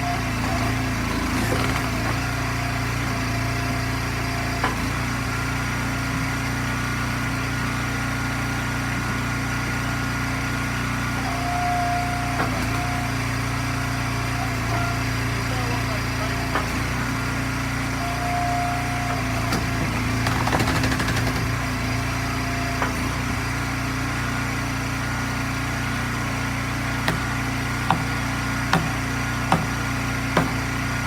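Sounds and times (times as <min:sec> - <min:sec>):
log splitter engine running: 0:00.0 - 0:31.0
sharp knocks: 0:27.0 - 0:29.8, 0:30.4 - 0:30.6.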